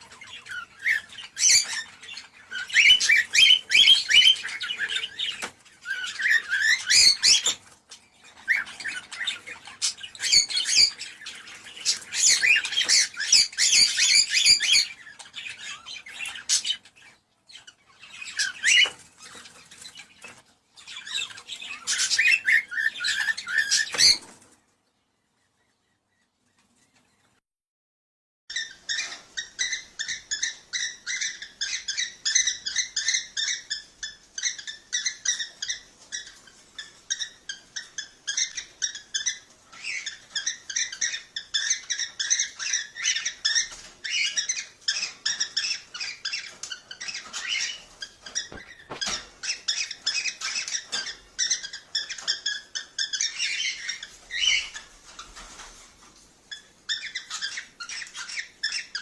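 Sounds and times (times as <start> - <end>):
cockatiels chirping: 0.0 - 24.5, 28.5 - 59.0.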